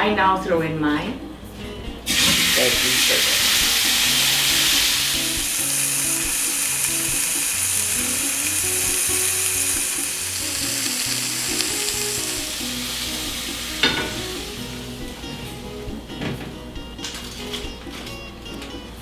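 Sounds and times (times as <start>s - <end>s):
vegetables sizzling on grill pan: 2.1s - 15.2s.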